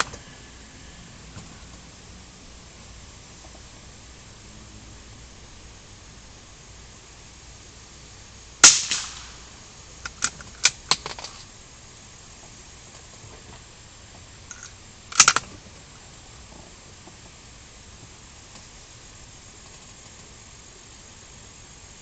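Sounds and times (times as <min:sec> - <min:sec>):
sharp clicks: 0:08.6 - 0:09.4, 0:14.5 - 0:15.6
rifle shot: 0:08.6 - 0:09.7
short sharp burst: 0:08.6 - 0:10.3.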